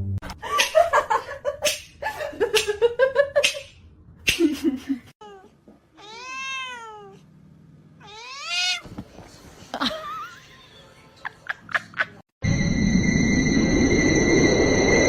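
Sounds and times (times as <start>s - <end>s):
cat meowing: 5.2s - 7.2s, 8.0s - 8.9s.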